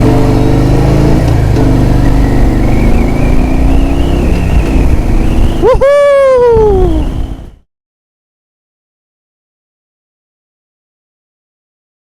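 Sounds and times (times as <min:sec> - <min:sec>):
motorcycle engine accelerating: 0:00.0 - 0:07.6.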